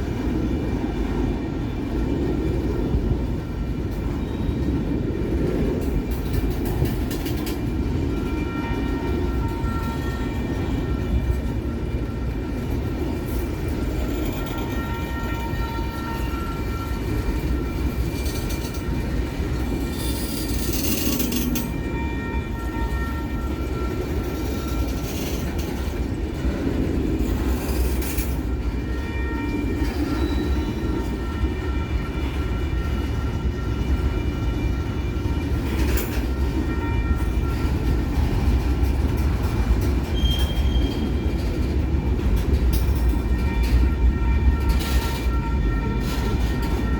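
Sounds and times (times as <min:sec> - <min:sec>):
freight train cars rumbling past: 0:00.0 - 0:46.9
sharp train clanks: 0:01.8 - 0:46.9
train wheel squeals: 0:04.0 - 0:04.9, 0:13.0 - 0:26.1, 0:27.2 - 0:31.5, 0:35.2 - 0:41.7.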